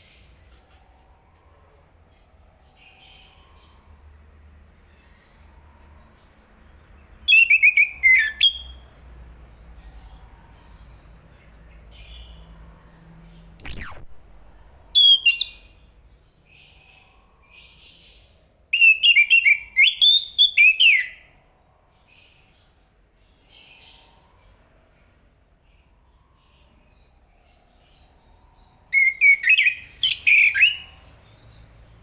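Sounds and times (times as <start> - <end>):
soft bird calls: 5.0 - 21.3, 25.7 - 32.0
sharp falling whistle: 13.6 - 15.6.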